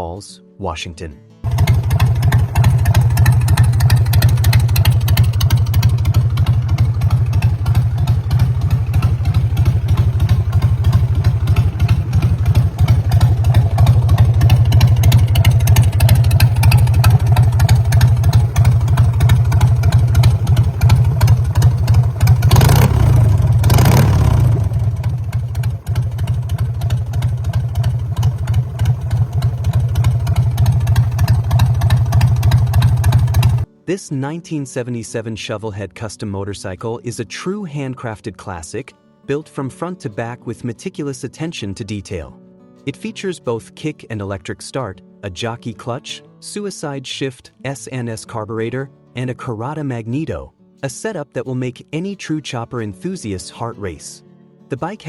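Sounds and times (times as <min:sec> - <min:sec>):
motorcycle engine idling and revving: 0:01.5 - 0:33.7.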